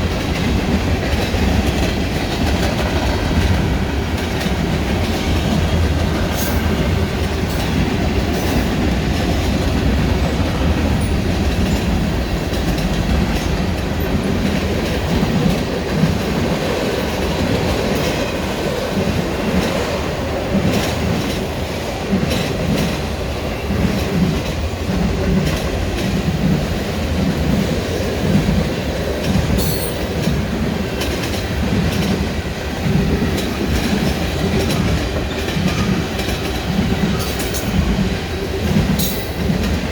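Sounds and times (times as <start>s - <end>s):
rumble of rail cars: 0.0s - 39.9s
wheels clacking over rail joints: 0.0s - 39.9s
wheel squeals on rail: 29.5s - 30.1s.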